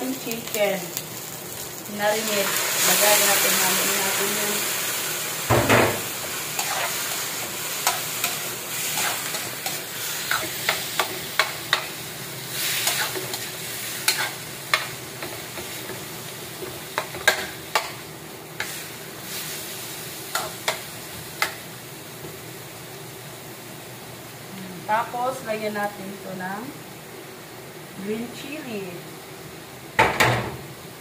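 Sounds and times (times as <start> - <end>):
chicken sizzling in oil: 0.0 - 24.4.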